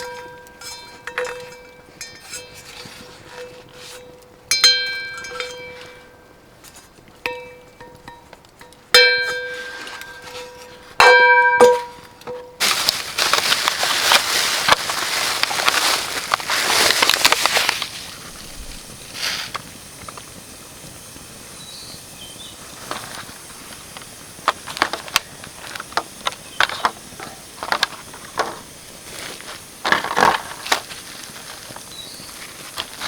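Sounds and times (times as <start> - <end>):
rustling of sticks: 0.0 - 20.4, 22.5 - 33.0
twigs snapping: 12.6 - 18.2.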